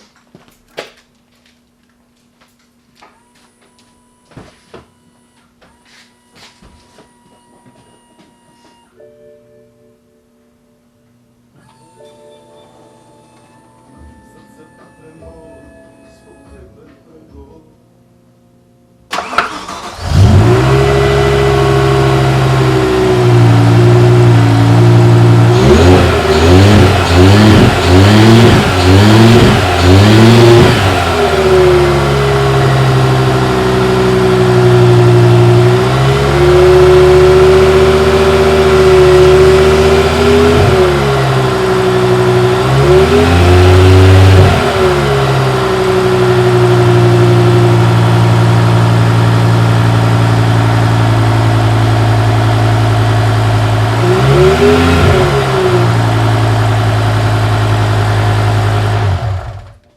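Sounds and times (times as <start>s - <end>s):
car engine idling and revving: 19.1s - 59.9s.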